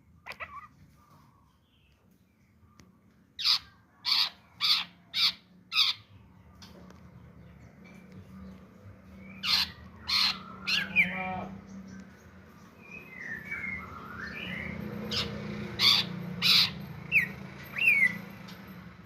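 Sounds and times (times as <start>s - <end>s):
bird singing harsh rasping notes: 3.4s - 18.7s
whistled glides and trill: 12.8s - 15.1s.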